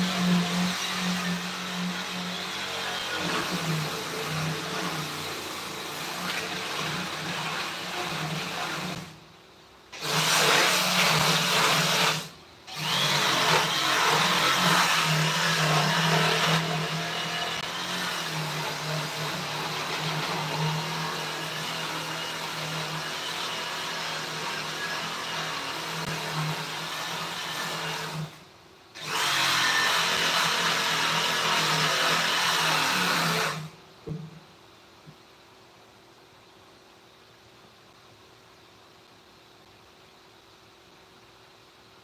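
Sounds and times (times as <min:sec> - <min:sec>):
electric power tool on wood: 0:00.0 - 0:09.1, 0:10.0 - 0:28.4, 0:29.0 - 0:33.8.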